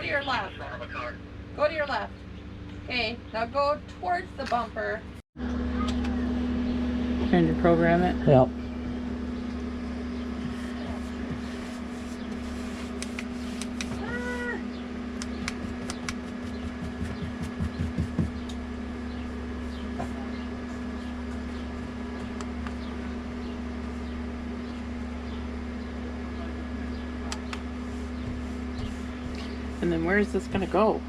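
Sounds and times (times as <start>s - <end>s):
low mechanical hum: 0.0s - 31.0s
quick thumps: 15.3s - 18.5s.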